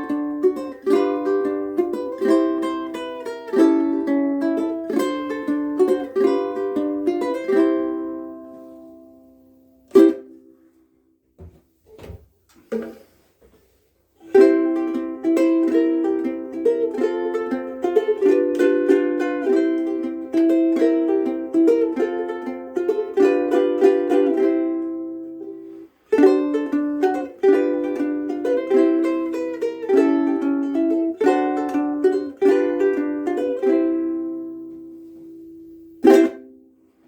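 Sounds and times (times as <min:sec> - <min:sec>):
ukulele strum: 0:00.0 - 0:10.7, 0:12.6 - 0:37.0
ukulele playing a tune: 0:00.0 - 0:10.8, 0:12.7 - 0:37.0
soft knocks: 0:11.4 - 0:13.6.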